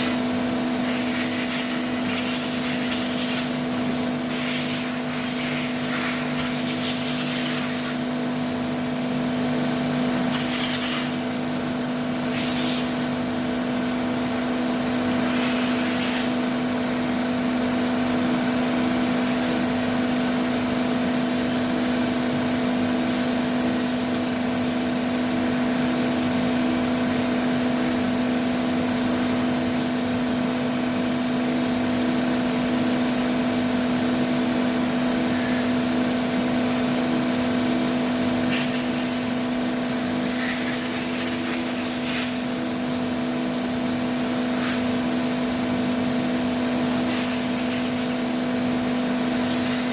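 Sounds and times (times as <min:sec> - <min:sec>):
sharp hissing bursts: 0:00.8 - 0:08.0, 0:10.2 - 0:11.4, 0:12.2 - 0:13.7, 0:38.5 - 0:45.6, 0:46.9 - 0:48.3, 0:49.3 - 0:49.9.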